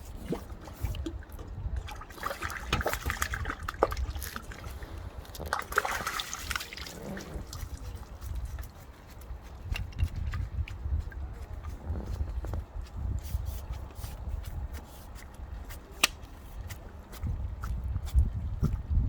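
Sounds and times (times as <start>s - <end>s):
water splashing and trickling: 0.0s - 19.0s.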